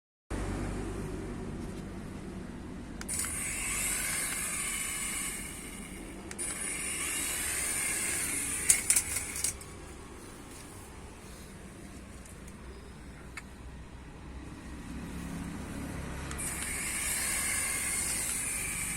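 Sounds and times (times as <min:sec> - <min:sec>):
sharp clicks: 0:03.0 - 0:09.8, 0:16.3 - 0:18.9
toy helicopter rotor whirring: 0:03.0 - 0:10.6, 0:15.1 - 0:18.9.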